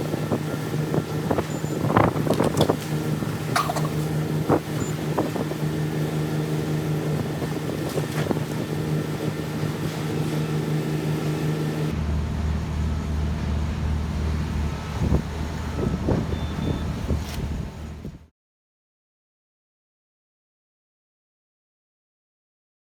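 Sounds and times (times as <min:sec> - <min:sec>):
machine hum: 0:00.0 - 0:18.1.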